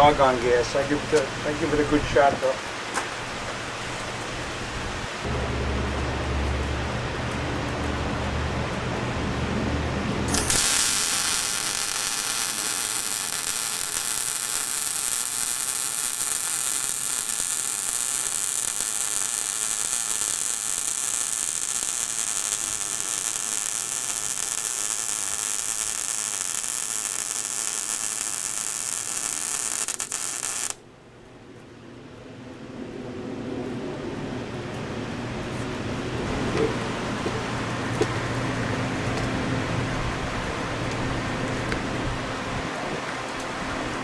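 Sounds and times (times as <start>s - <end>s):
welding arc hissing buzz: 10.3s - 30.8s
low wind rumble: 30.9s - 44.0s.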